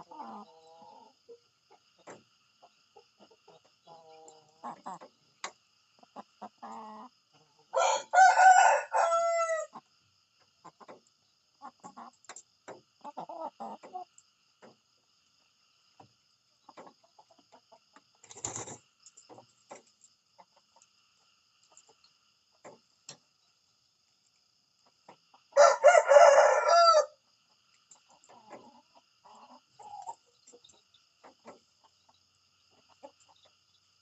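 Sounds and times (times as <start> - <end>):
chicken clucks: 0.0 - 23.5, 24.7 - 34.0
rooster crowing: 7.7 - 9.7, 25.6 - 27.2.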